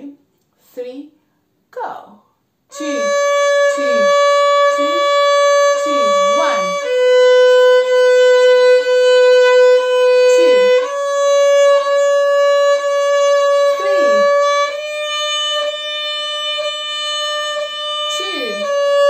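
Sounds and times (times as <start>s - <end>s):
violin bowed notes: 2.7s - 19.0s.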